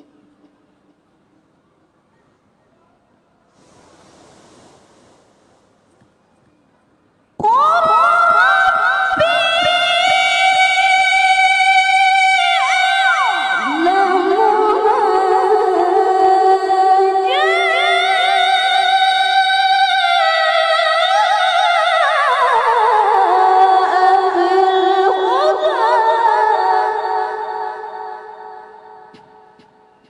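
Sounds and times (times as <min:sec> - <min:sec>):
woman chanting melodically: 0:07.4 - 0:29.5.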